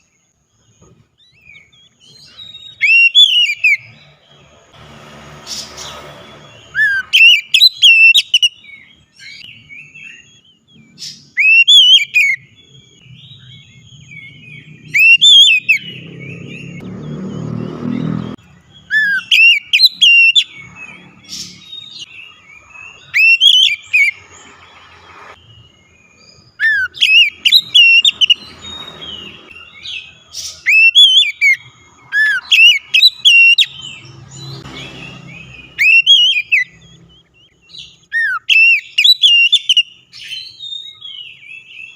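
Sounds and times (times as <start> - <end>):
bird singing whistled phrases: 1.3 - 3.9, 6.7 - 16.8, 18.8 - 20.7, 21.4 - 24.2, 26.2 - 34.0, 35.3 - 41.9.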